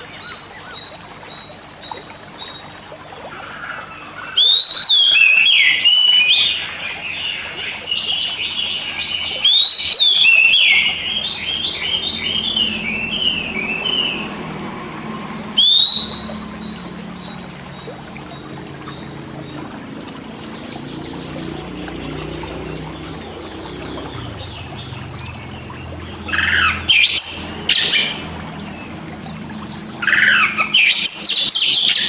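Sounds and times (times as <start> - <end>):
songbird whistling and warbling: 4.3 - 6.6, 9.2 - 14.4, 15.3 - 19.5, 30.0 - 32.0.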